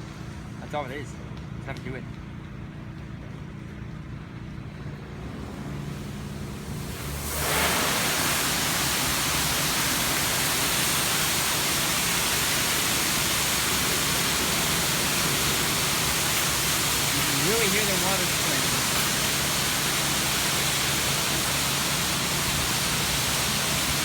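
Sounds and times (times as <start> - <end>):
low idling hum: 1.2 - 24.0
water jets spraying onto car: 5.1 - 24.0.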